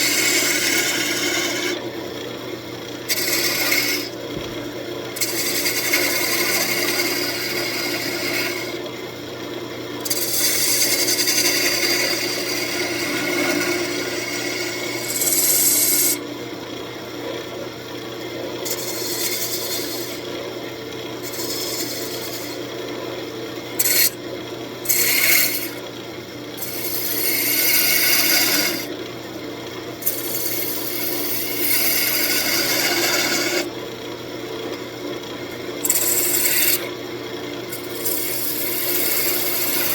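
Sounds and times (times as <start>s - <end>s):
tool scraping wood: 0.0s - 1.8s, 3.1s - 8.8s, 10.0s - 16.2s, 18.7s - 20.2s, 21.2s - 22.6s, 23.8s - 24.2s, 24.8s - 25.8s, 26.6s - 28.9s, 30.0s - 33.7s, 35.8s - 36.9s, 37.7s - 39.9s
lathe motor hum: 0.0s - 16.2s, 16.8s - 39.9s.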